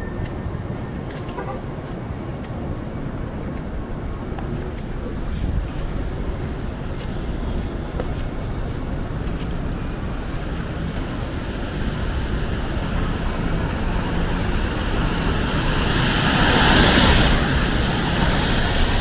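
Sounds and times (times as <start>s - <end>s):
steady low rumble: 0.0s - 19.0s
tyre hiss on wet road: 9.4s - 19.0s.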